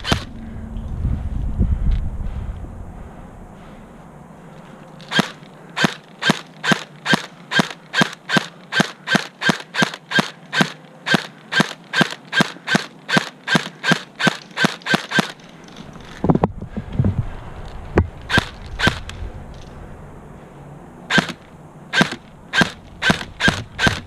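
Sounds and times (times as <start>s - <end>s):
airsoft gun firing single shots: 5.1s - 15.4s, 21.1s - 24.0s.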